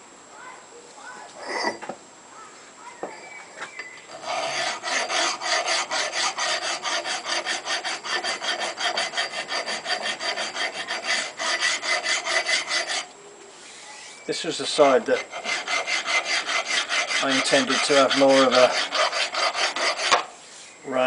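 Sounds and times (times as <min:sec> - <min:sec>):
hand file rasping on steel: 0:04.1 - 0:13.1, 0:14.7 - 0:20.3.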